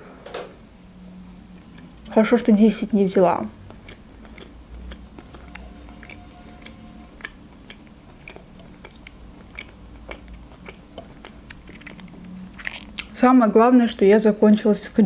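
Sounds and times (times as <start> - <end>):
chewing soft food: 1.5 - 2.2, 2.8 - 13.2.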